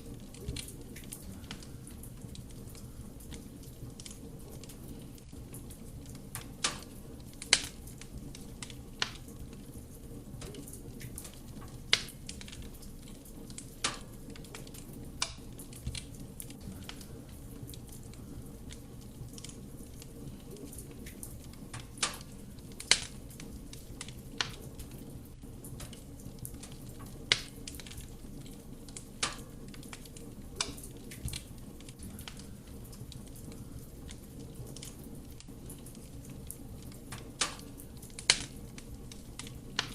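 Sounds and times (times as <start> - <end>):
burning logs crackling and popping: 0.0 - 39.9
low rumble of flame: 0.0 - 39.9.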